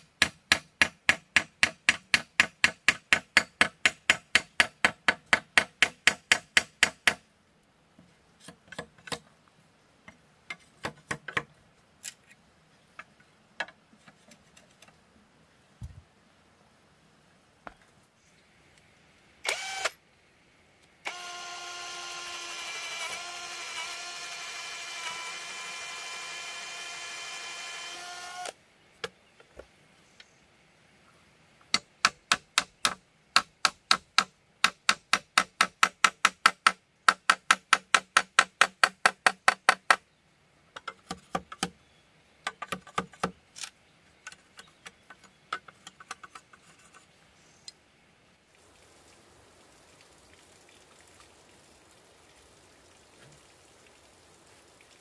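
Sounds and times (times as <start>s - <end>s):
power tool motor running: 19.5s - 19.9s, 21.1s - 28.5s.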